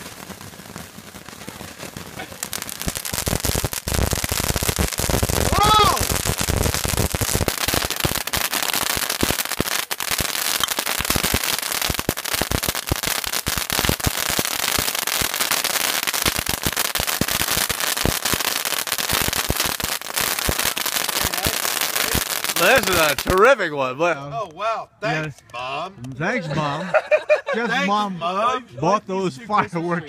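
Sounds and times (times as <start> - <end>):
fireworks crackling and popping: 0.0 - 23.8.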